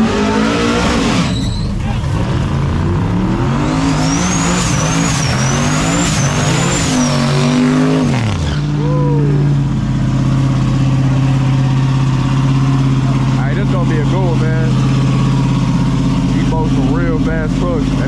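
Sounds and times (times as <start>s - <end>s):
truck engine accelerating: 0.0s - 18.0s
high whine: 0.9s - 7.8s.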